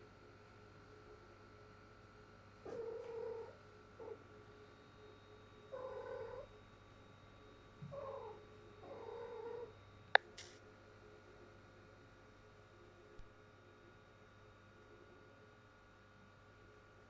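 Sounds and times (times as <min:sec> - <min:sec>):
cat calling: 0:02.7 - 0:04.2.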